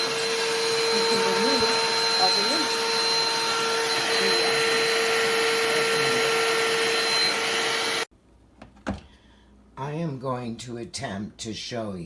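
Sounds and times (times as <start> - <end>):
handheld vacuum motor whine: 0.0 - 8.1.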